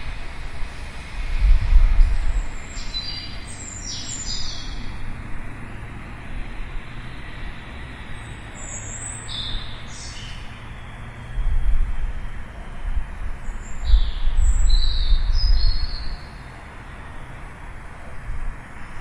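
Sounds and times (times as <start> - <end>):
steady low rumble: 0.0 - 3.5
small birds chirping: 2.2 - 5.0, 8.1 - 11.0, 13.4 - 17.0.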